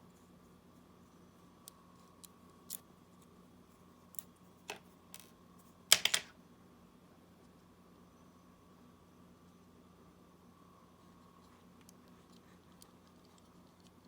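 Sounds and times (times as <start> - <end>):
tools clicking on small parts: 5.9 - 6.3.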